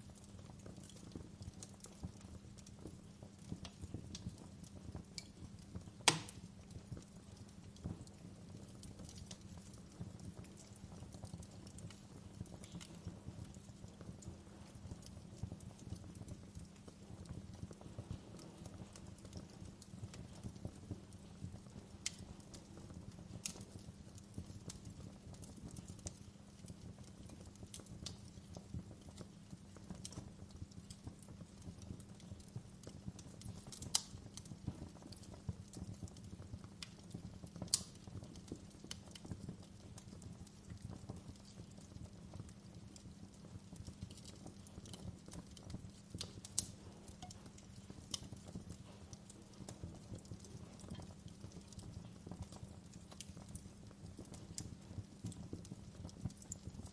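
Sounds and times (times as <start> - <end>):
wood fire crackling: 0.0 - 56.9
sharp fire pops: 5.1 - 6.8, 33.2 - 39.6.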